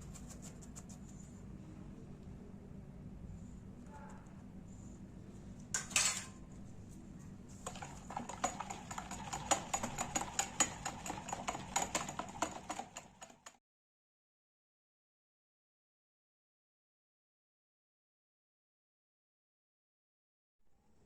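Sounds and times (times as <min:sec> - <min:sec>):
metal utensils clinking on cookware: 0:05.8 - 0:06.4.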